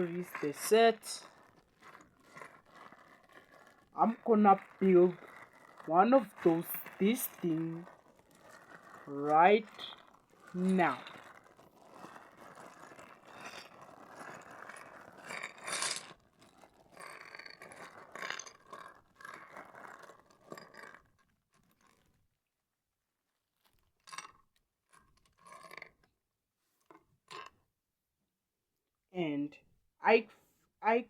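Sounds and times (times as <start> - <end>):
packaging rustling and scraping: 0.0 - 22.2.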